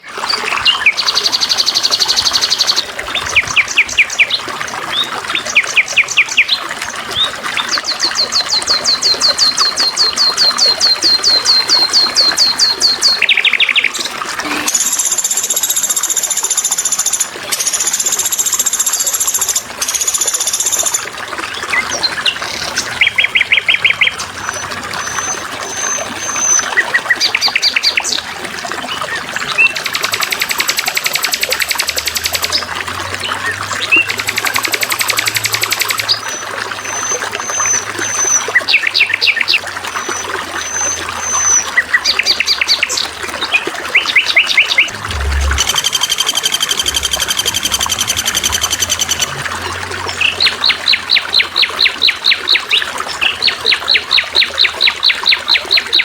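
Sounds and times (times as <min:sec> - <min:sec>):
water trickling: 0:00.0 - 0:56.0
songbirds trilling and chirping: 0:19.0 - 0:56.0
high shrill birdsong: 0:44.8 - 0:50.8.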